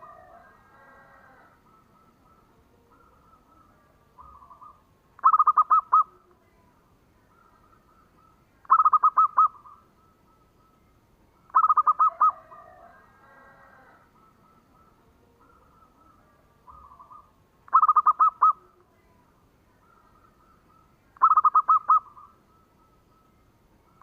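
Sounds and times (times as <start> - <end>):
dove cooing: 0.0 - 6.5, 7.2 - 10.7, 11.4 - 24.0.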